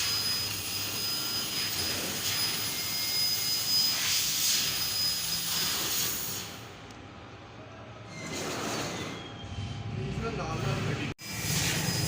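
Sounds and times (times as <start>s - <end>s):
laser cutting machine hissing: 0.0s - 6.7s, 11.2s - 12.0s.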